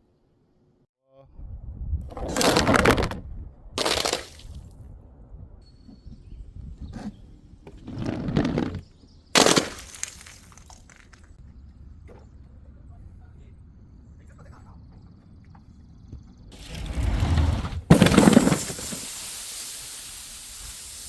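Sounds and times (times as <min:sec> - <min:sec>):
glass bottles smashing: 0:02.2 - 0:03.2, 0:03.8 - 0:04.6, 0:09.4 - 0:11.2, 0:17.9 - 0:19.1.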